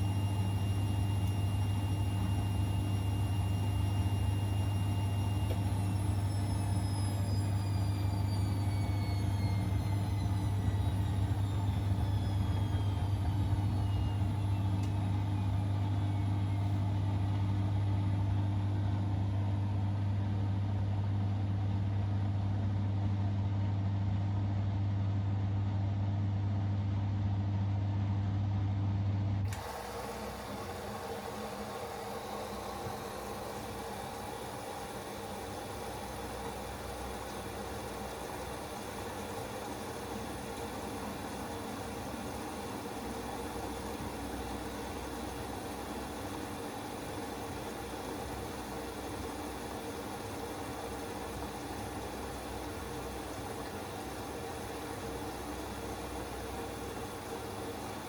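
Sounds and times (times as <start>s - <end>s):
washing machine humming: 0.0s - 58.0s.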